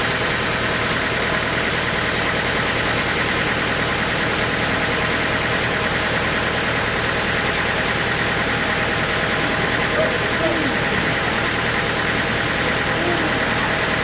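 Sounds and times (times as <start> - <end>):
sawmill machinery droning: 0.0 - 14.0.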